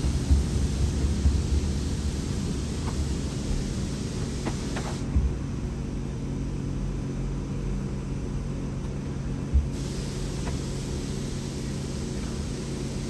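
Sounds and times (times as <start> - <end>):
diesel engine running: 0.0 - 6.8, 9.5 - 13.0.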